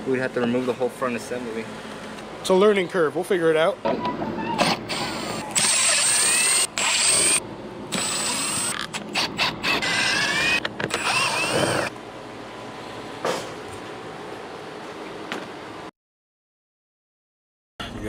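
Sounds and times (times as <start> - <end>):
power tool motor whining: 4.6 - 11.9.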